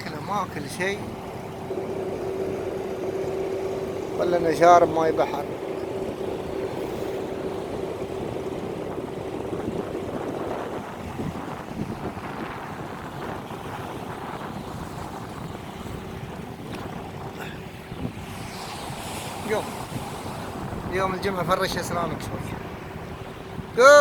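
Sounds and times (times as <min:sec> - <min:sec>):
water sounds: 0:00.0 - 0:24.0
motor hum: 0:00.4 - 0:17.0
wind noise on microphone: 0:01.0 - 0:24.0.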